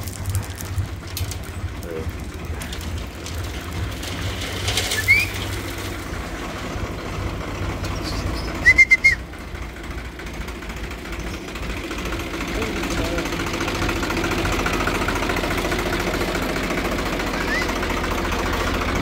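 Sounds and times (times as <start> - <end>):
tractor engine rumbling: 0.0 - 19.0
bird chirps: 7.8 - 9.2.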